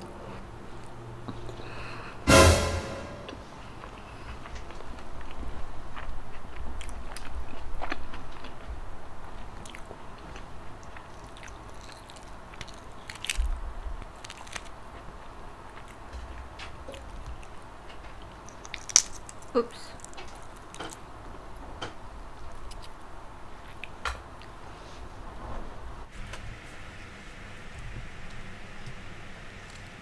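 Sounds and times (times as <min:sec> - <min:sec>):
person chewing food: 0:04.8 - 0:13.4, 0:14.0 - 0:17.6, 0:18.2 - 0:21.0
egg shell crackling while peeled: 0:10.8 - 0:15.2, 0:18.2 - 0:21.1.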